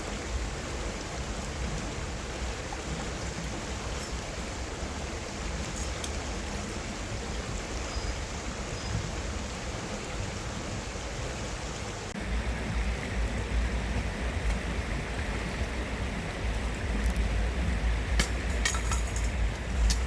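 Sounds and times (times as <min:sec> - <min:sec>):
stream water rushing: 0:00.0 - 0:20.0
low rumble: 0:12.2 - 0:20.0.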